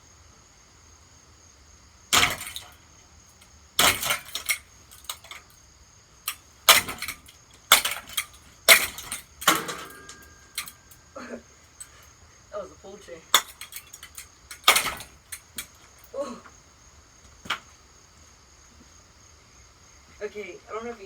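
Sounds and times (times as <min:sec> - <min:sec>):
hammer smashing ceiling fan: 0:02.1 - 0:02.8, 0:03.8 - 0:05.5, 0:06.3 - 0:11.0, 0:13.3 - 0:15.8
loose metal parts rattling: 0:02.1 - 0:05.6, 0:06.2 - 0:11.1, 0:11.7 - 0:12.1, 0:13.3 - 0:16.2.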